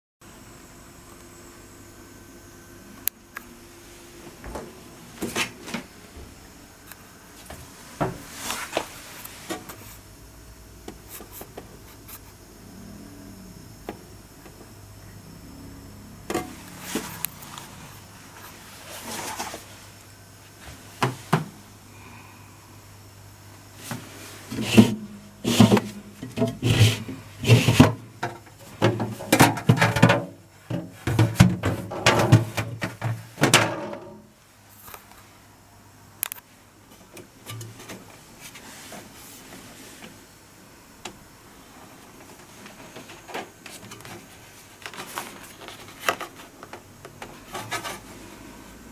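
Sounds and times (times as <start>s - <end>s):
faint low hum: 0.3s - 48.9s
refrigerator drawers clattering: 24.5s - 34.2s.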